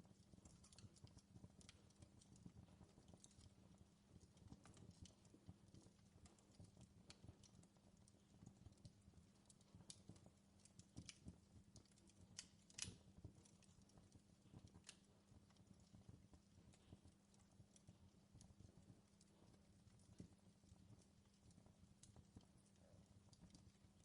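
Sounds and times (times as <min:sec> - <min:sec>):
wood fire crackling: 0:00.0 - 0:24.0
sharp snap of fire: 0:12.3 - 0:13.6.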